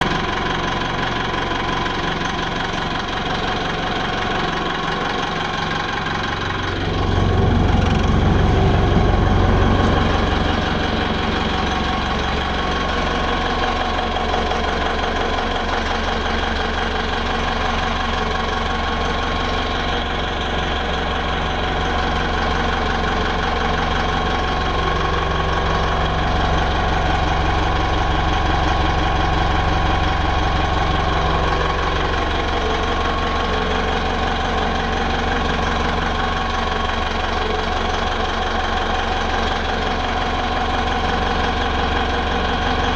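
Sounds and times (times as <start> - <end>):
diesel engine idling: 6.3 - 13.5.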